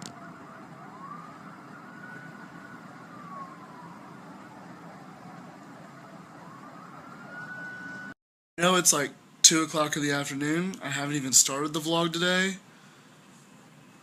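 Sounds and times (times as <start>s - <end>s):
emergency vehicle siren wailing: 0.0s - 8.2s.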